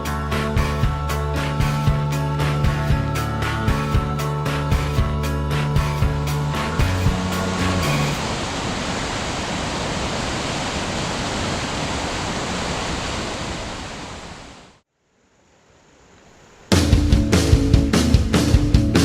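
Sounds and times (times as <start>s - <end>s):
flowing water rushing: 5.9s - 14.8s.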